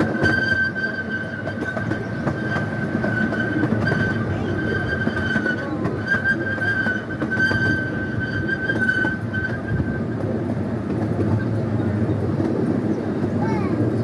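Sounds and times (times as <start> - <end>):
high wheel squeal: 0.0 - 10.2
train rumbling along track: 0.0 - 14.0.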